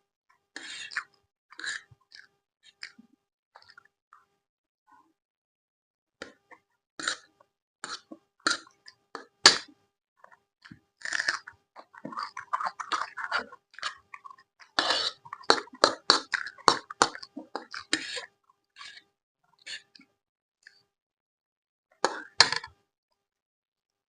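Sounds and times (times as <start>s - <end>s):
chewing and mouth sounds: 10.6s - 19.0s.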